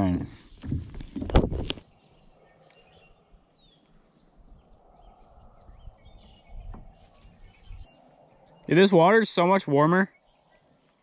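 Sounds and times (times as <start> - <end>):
distant birds chirping: 0.0 - 11.0.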